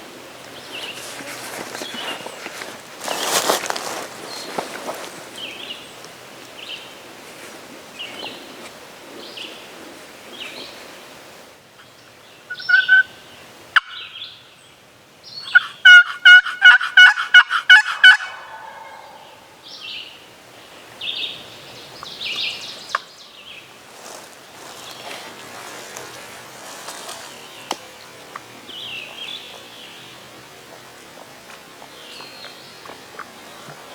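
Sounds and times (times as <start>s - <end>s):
wild turkey calling: 11.8s - 14.5s, 15.4s - 20.1s, 22.0s - 29.9s.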